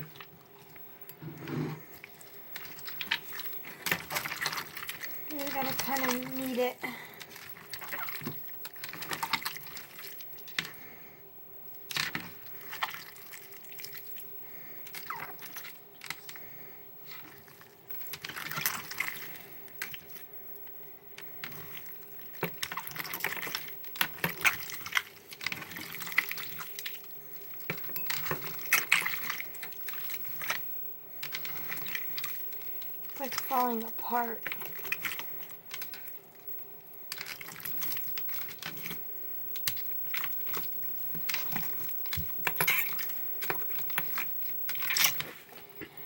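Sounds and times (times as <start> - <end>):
slime squelching and smacking: 0.0 - 10.9, 11.7 - 46.0.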